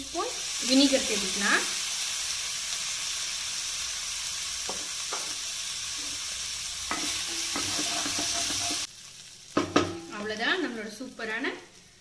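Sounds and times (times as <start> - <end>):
chicken sizzling in a frying pan: 0.0 - 12.0
wooden spatula scraping a pan: 6.9 - 8.9.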